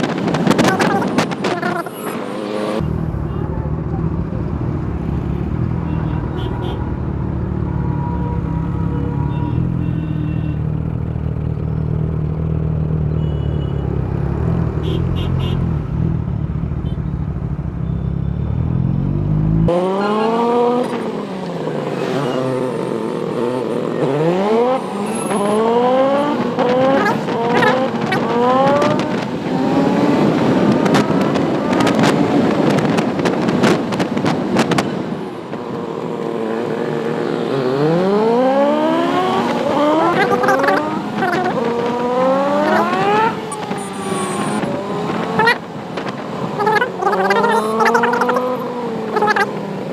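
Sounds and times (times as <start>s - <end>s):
wind: 0.0s - 49.9s
motorcycle engine revving: 18.8s - 49.9s.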